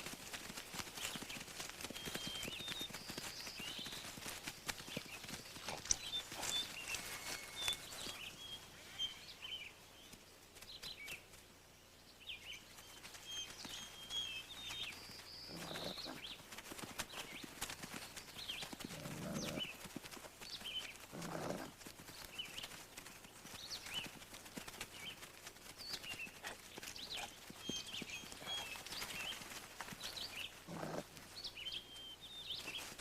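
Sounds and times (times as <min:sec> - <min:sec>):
wolf pups whining and squeaking: 0:05.7 - 0:09.2, 0:15.5 - 0:16.2, 0:21.1 - 0:21.7, 0:26.4 - 0:28.9, 0:30.6 - 0:31.1.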